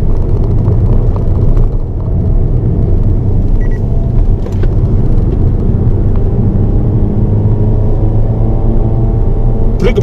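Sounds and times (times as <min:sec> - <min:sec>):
car engine running hard: 0:00.0 - 0:10.0.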